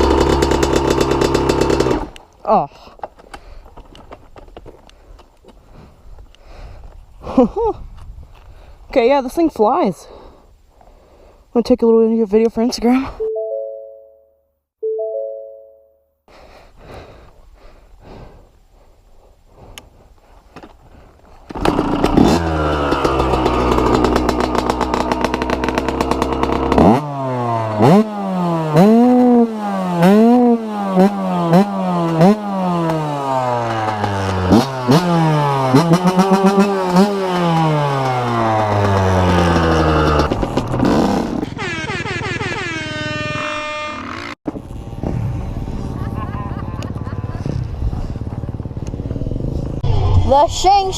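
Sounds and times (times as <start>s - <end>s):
dirt bike engine revving: 0.0s - 2.2s, 21.5s - 50.4s
two-note chime: 13.2s - 16.0s.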